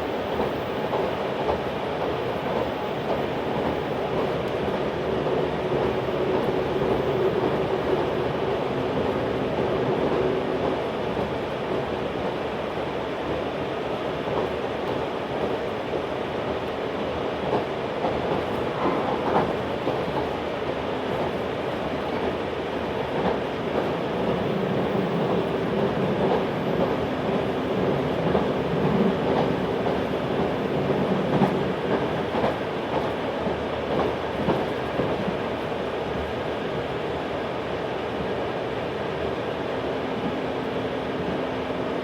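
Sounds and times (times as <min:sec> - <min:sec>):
train wheels rumbling on rail: 0:00.0 - 0:42.0
rail joint clacks: 0:17.5 - 0:21.4, 0:23.0 - 0:35.4.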